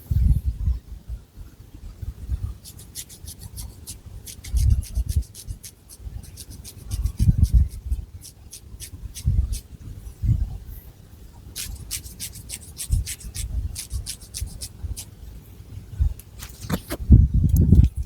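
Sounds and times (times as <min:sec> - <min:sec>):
fingernails scratching hair: 0:02.5 - 0:09.7, 0:11.6 - 0:15.1.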